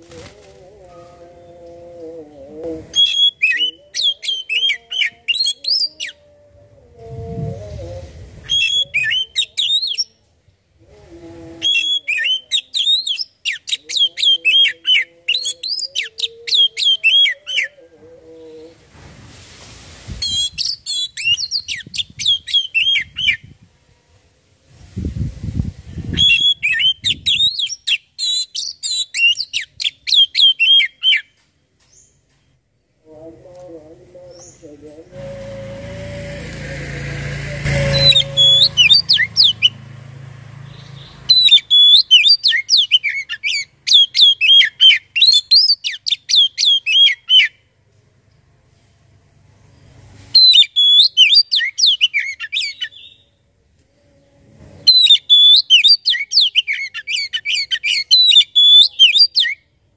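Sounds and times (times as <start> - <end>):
brief low rumbles: 6.4 - 8.6, 33.1 - 41.3
bird singing whistled phrases: 37.6 - 39.7, 40.8 - 47.5, 50.4 - 53.2, 54.9 - 59.6.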